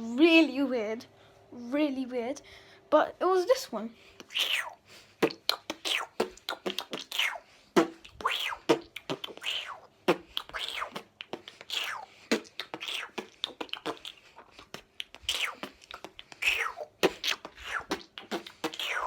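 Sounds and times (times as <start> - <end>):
beatbox mouth swoops: 4.2 - 19.0
mouth clicks and pops: 4.2 - 19.0.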